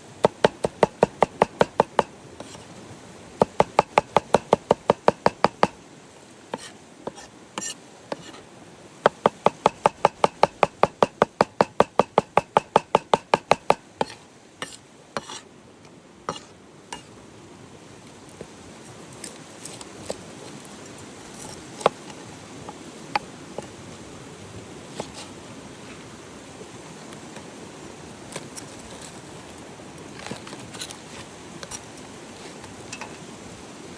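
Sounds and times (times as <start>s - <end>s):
scattered clicks and knocks: 0.2s - 2.1s, 3.4s - 5.8s, 9.1s - 13.8s.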